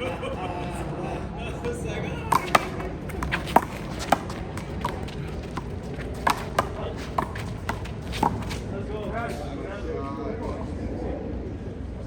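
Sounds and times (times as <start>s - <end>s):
handball slapping wall and pavement: 1.6s - 8.8s.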